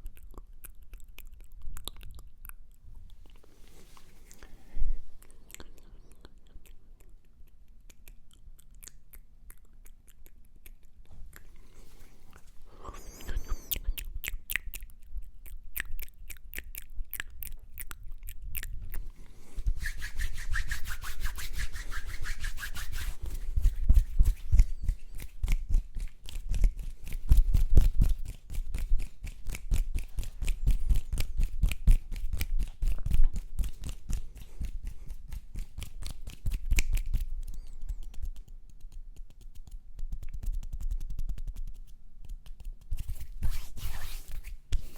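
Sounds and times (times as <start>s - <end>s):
mouth clicks and taps: 12.3s - 19.8s, 23.3s - 43.2s.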